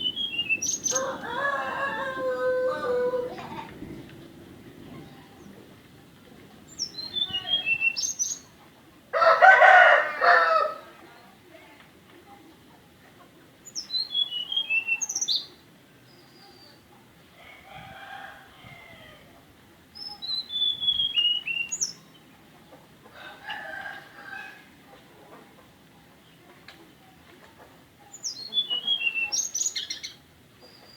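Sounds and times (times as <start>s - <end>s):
bird whistling song: 0.0s - 1.2s, 6.7s - 8.5s, 13.6s - 15.5s, 20.0s - 22.0s, 28.2s - 30.9s
rooster crowing: 0.8s - 3.7s, 9.2s - 10.9s, 17.4s - 19.3s, 23.1s - 24.7s.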